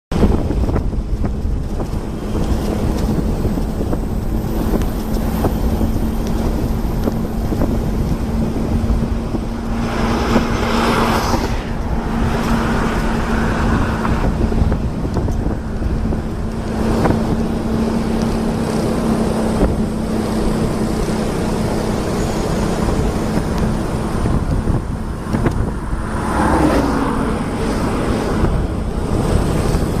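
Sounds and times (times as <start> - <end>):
vehicle engine and travel noise: 0.1 - 30.0
wind on microphone: 0.1 - 30.0
short rushes of noise: 9.3 - 14.4.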